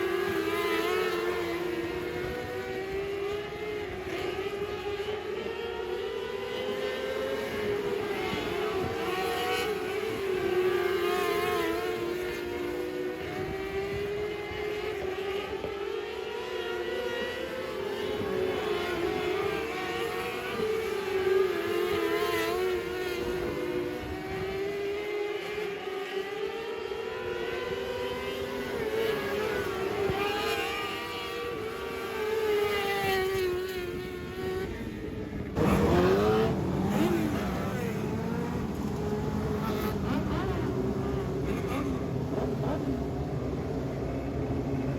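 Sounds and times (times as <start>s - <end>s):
race car engines at high revs: 0.0s - 44.9s.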